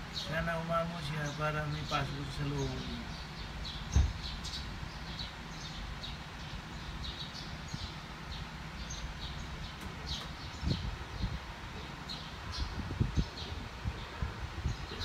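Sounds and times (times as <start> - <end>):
small birds chirping: 0.0 - 15.0
low thump: 3.9 - 4.3.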